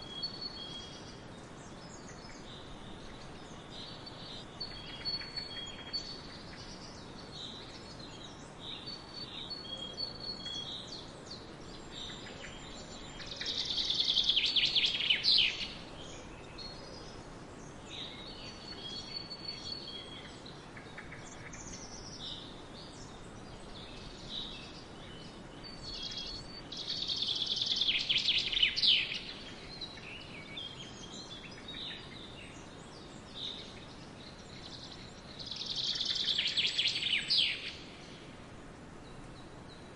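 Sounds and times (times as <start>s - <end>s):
birds chirping: 0.0s - 39.9s
faint steady background hiss: 0.0s - 39.9s
bird singing rapid trill: 18.1s - 37.9s.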